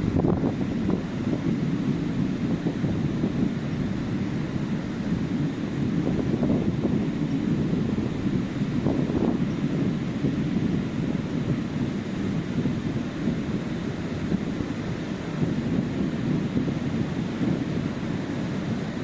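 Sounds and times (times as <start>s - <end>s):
sea waves on a beach: 0.0s - 19.0s
wind noise on microphone: 0.0s - 19.0s.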